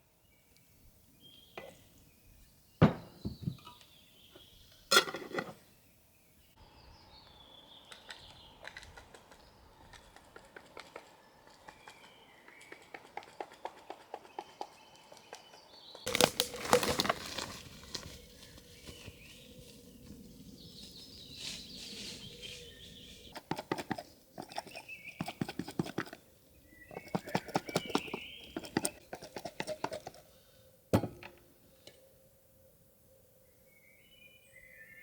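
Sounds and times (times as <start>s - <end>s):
faint bird chirps: 26.6s - 29.0s.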